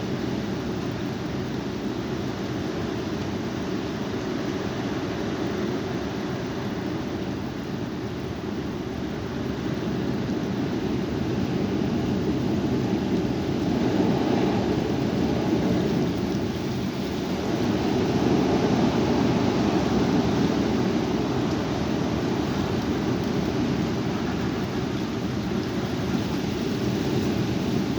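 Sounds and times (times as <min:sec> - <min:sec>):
strong wind on microphone: 0:08.6 - 0:27.9.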